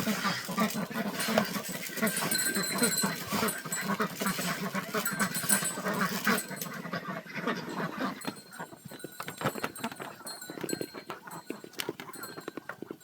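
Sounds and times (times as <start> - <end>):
dog calls: 0.0 - 8.8.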